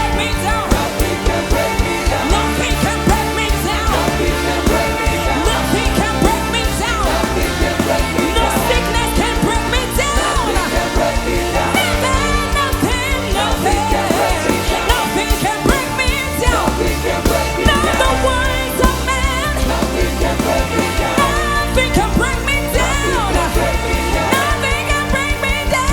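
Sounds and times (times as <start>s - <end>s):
band with bass and drums: 0.0s - 25.9s
voices singing: 0.0s - 25.9s.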